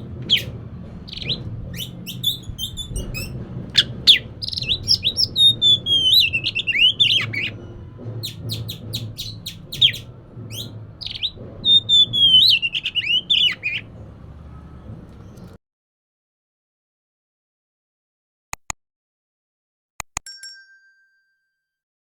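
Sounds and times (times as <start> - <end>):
bird singing varied song: 0.0 - 15.6.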